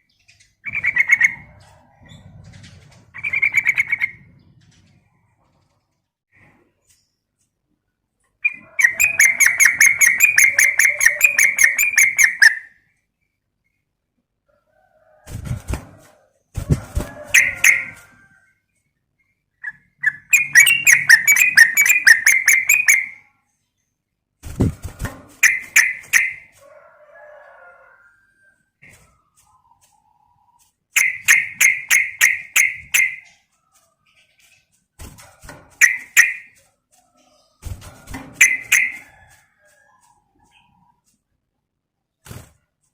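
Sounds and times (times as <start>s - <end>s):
bird chattering call: 8.4s - 12.7s, 19.7s - 23.2s.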